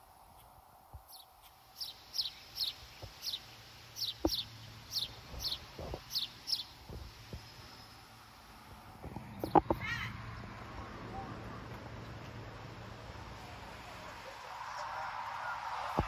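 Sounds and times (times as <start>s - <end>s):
bird chirping: 1.0s - 7.0s.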